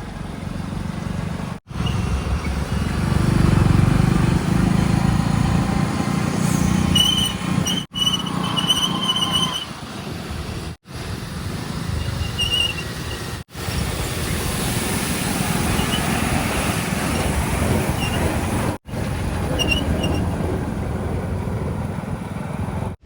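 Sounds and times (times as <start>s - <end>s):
diesel machinery rumbling: 0.0s - 23.0s
high-pitched whistling tones: 1.7s - 3.0s, 6.4s - 9.8s, 12.0s - 13.3s.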